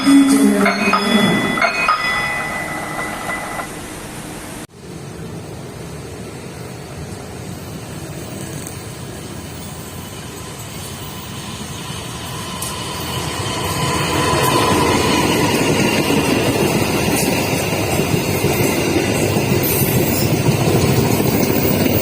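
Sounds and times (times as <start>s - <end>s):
high steady tone: 0.0s - 4.6s
train rumble: 0.0s - 22.0s.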